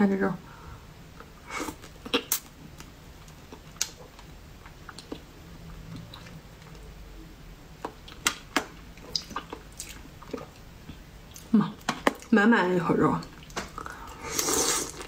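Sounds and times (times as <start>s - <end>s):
wet chewing clicks and smacks: 2.0s - 5.3s, 7.8s - 10.7s.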